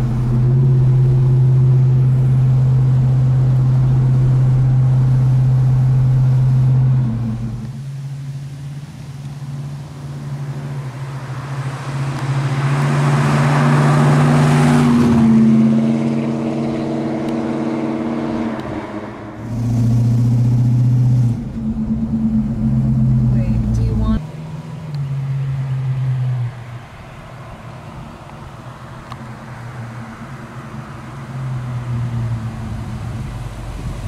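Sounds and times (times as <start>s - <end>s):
car engine drone from inside: 0.0s - 34.0s
car passing by: 0.0s - 34.0s.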